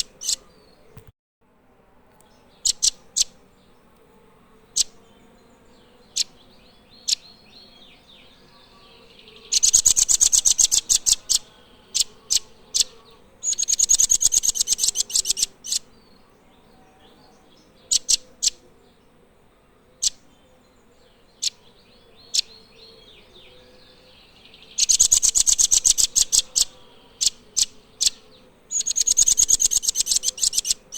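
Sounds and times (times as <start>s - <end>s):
bird trilling: 0.0s - 0.4s, 2.6s - 3.4s, 9.4s - 15.9s, 17.9s - 18.6s, 24.7s - 30.9s.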